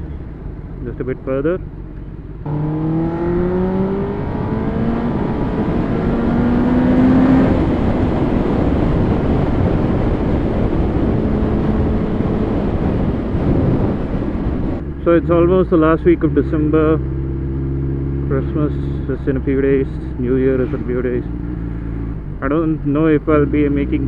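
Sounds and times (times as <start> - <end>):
motorcycle engine accelerating: 0.0 - 24.0
wind and road rush: 0.0 - 24.0.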